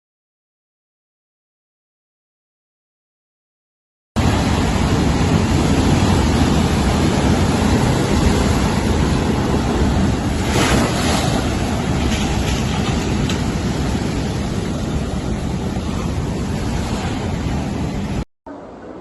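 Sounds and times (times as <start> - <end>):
wind buffeting microphone: 4.2 - 18.2.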